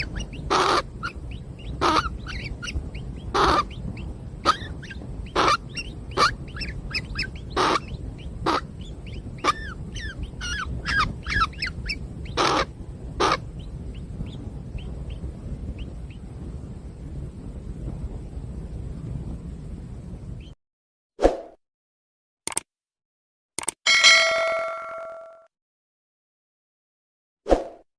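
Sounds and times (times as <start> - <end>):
harsh bird squawks: 0.0 - 3.8, 4.4 - 8.7, 12.4 - 13.4
nestlings chirping: 0.0 - 16.2.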